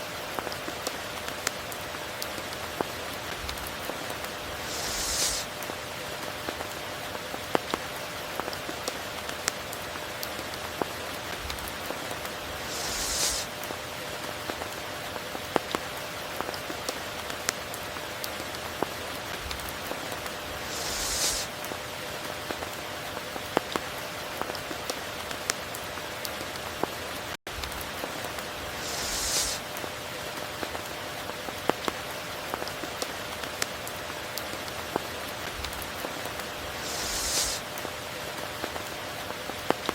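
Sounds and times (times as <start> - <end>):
rain falling over river: 0.0 - 39.9
short hissing swell: 4.5 - 5.5, 12.6 - 13.5, 20.6 - 21.5, 28.7 - 29.6, 36.8 - 37.6.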